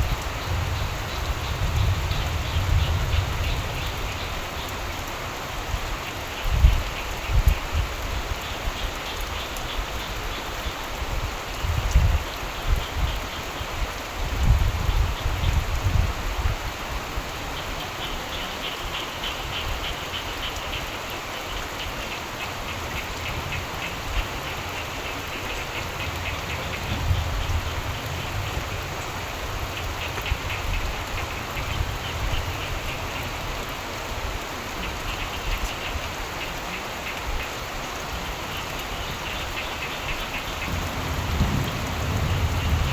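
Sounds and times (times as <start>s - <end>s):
distant thunder rumbles: 0.0s - 4.3s, 25.5s - 32.7s, 40.4s - 42.9s
steady rain: 0.0s - 42.9s.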